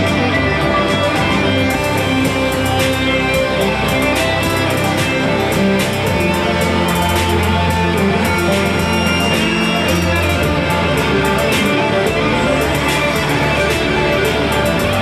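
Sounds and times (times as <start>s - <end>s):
bass: 0.0s - 15.0s
guitar: 0.0s - 15.0s.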